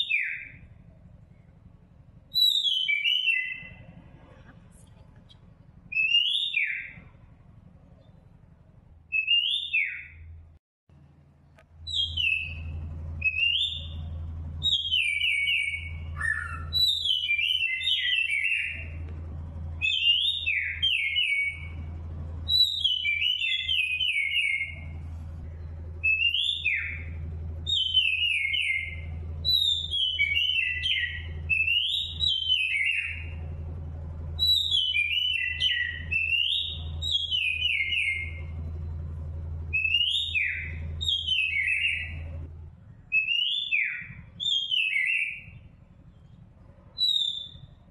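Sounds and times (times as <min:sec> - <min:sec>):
songbird whistling: 0:00.0 - 0:00.7, 0:02.3 - 0:03.9, 0:05.9 - 0:07.1, 0:09.1 - 0:10.3, 0:11.8 - 0:19.0, 0:19.8 - 0:25.0, 0:26.0 - 0:33.5, 0:34.4 - 0:38.6, 0:39.7 - 0:42.4, 0:43.1 - 0:45.8, 0:47.0 - 0:47.9
steady low hum: 0:00.0 - 0:47.9.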